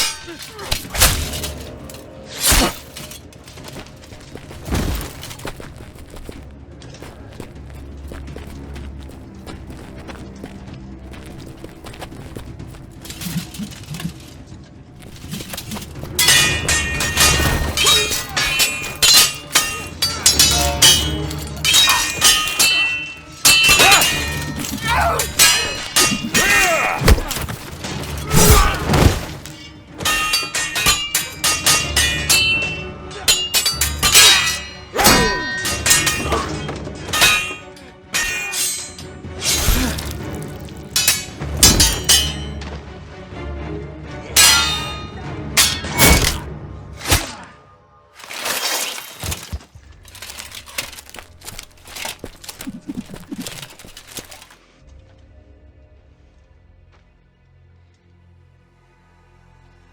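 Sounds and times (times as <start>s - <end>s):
steel swords clashing: 0.0s - 5.6s, 11.3s - 14.3s, 15.0s - 42.6s, 44.4s - 47.5s, 48.2s - 54.5s
music: 0.0s - 59.9s.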